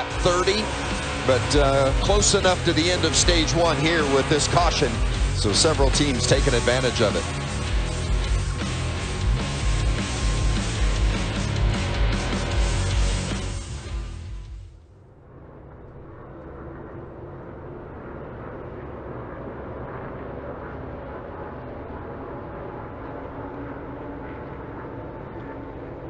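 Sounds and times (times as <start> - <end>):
race truck engines droning: 0.0 - 14.2.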